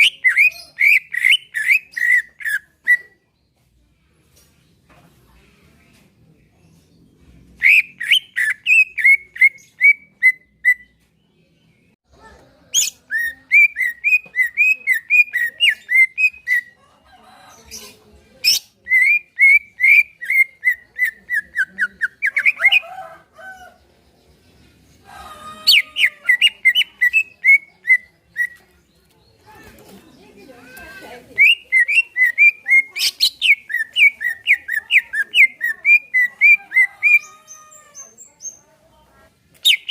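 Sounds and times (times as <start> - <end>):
bird singing whistled notes: 7.6 - 11.0, 31.4 - 37.2.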